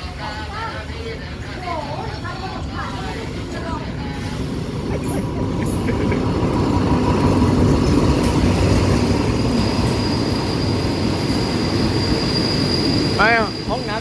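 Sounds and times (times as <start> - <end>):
train wheels rumbling on rail: 1.5 - 14.0
high brake squeal: 9.4 - 14.0.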